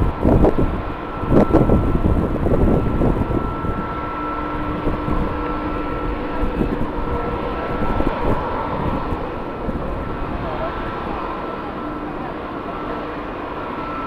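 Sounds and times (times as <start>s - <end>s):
wind noise on microphone: 0.0s - 11.4s
jet engines whining and rumbling: 0.0s - 14.0s.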